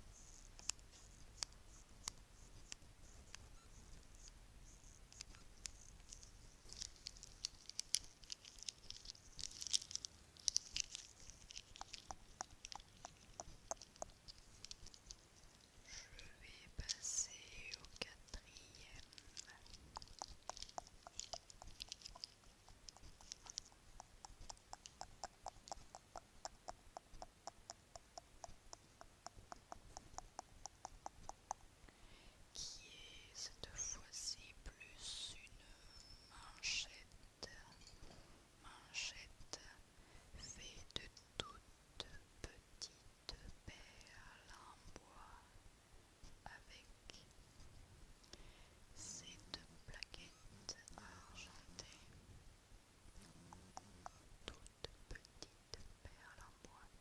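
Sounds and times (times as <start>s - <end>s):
bracelets clinking: 5.6s - 15.7s, 18.6s - 23.7s.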